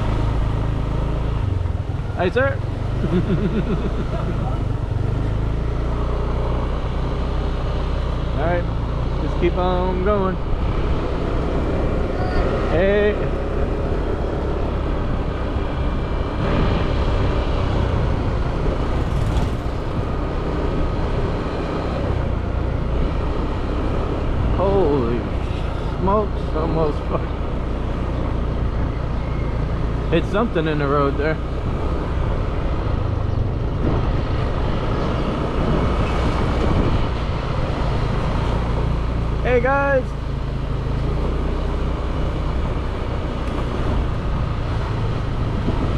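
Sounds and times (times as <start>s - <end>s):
motorbike engine running: 0.0s - 33.6s
road and wind noise: 0.0s - 45.9s.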